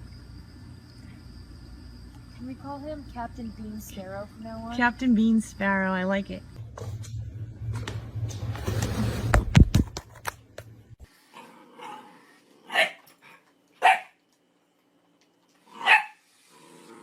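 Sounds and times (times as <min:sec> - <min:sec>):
dog barking: 0:12.7 - 0:13.0, 0:13.8 - 0:14.2, 0:15.8 - 0:16.2.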